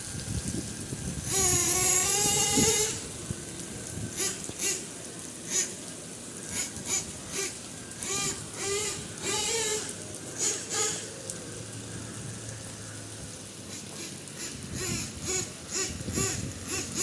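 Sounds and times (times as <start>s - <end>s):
rain hissing: 0.0s - 17.0s
toy truck motor whining: 1.2s - 3.2s, 4.0s - 5.8s, 6.5s - 11.2s, 13.7s - 17.0s.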